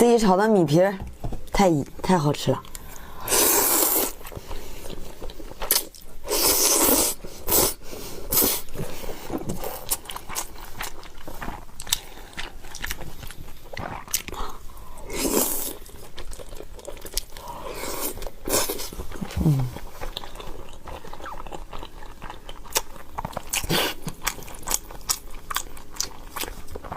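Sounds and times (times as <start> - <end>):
person biting and chewing: 5.3 - 8.8, 9.4 - 26.9.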